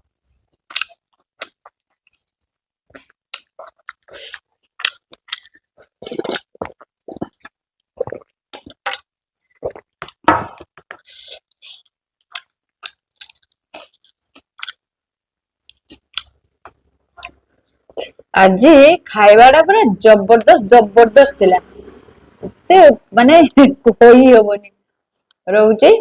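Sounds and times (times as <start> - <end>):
person chewing: 0.1 - 14.9, 15.6 - 18.3
food crunching: 0.4 - 14.9, 15.6 - 18.3.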